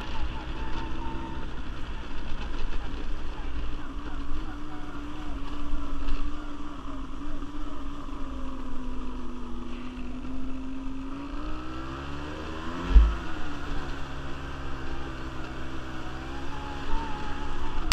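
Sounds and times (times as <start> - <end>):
quad bike engine running: 0.0 - 17.9.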